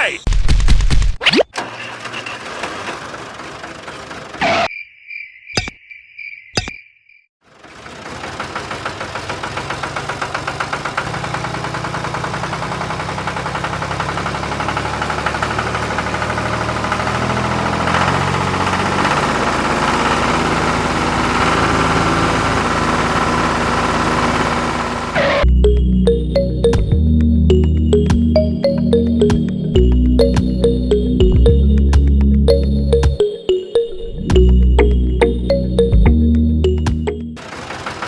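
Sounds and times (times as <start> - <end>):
music: 25.4 - 37.4.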